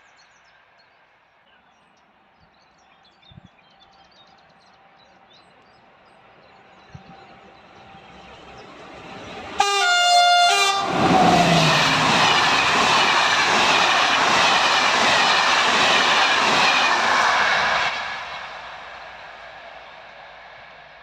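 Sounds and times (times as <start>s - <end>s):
passenger train passing: 0.0s - 21.0s
train horn: 9.1s - 12.4s
wheel and rail noise: 10.7s - 21.0s.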